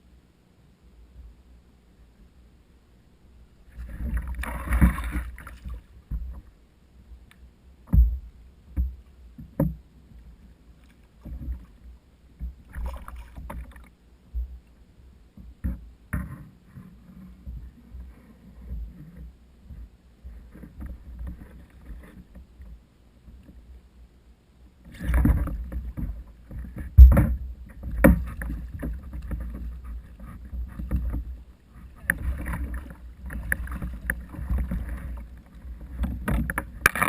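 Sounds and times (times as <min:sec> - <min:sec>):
water splashing around a kayak: 0:03.6 - 0:06.5, 0:07.9 - 0:14.6, 0:24.8 - 0:37.0
dull thumps: 0:07.9 - 0:09.8, 0:25.2 - 0:29.7.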